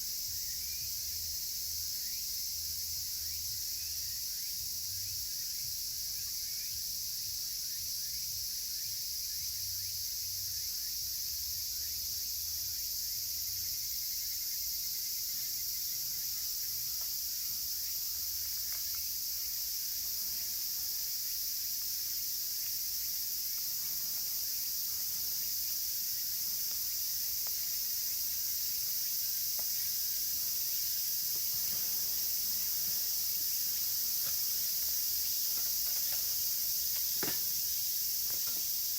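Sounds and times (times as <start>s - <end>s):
cicadas droning: 0.0s - 38.9s
wood fire crackling: 23.4s - 38.9s.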